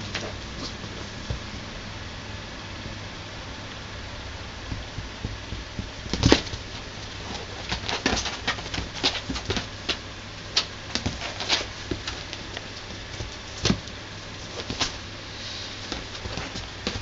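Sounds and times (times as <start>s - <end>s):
steady low hum: 0.0s - 17.0s
kitten playing with taps and scuffles: 4.7s - 15.0s, 15.8s - 17.0s.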